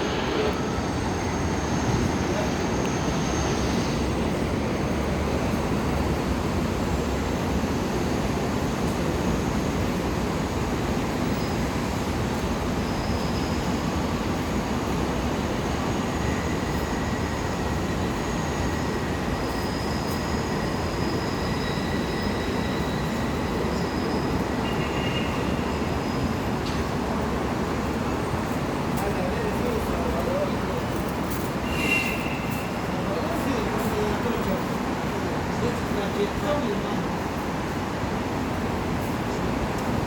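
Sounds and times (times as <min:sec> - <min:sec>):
subway train rumbling: 0:00.0 - 0:40.0
wheel squeals: 0:31.4 - 0:33.0.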